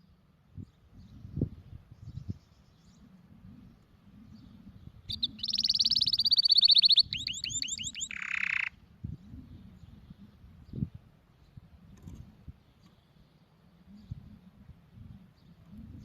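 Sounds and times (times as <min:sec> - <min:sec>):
canary singing: 0:04.4 - 0:08.8.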